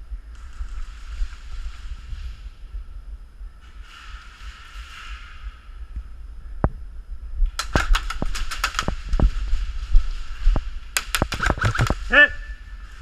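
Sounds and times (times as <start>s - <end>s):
low rumble on microphone: 0.0s - 7.6s
airsoft guns firing: 7.6s - 9.3s, 11.0s - 12.1s.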